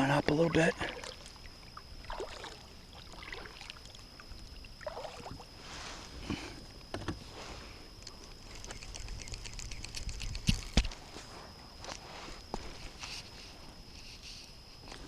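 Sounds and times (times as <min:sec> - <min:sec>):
water swishing: 0:00.5 - 0:06.0.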